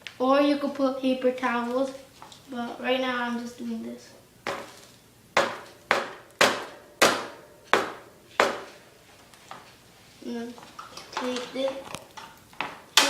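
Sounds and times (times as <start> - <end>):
sharp knocks on hard object: 5.4 - 8.8.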